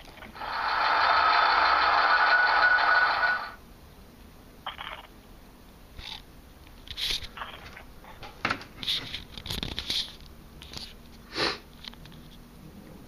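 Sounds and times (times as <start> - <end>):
rustling and scratching: 6.9 - 11.2.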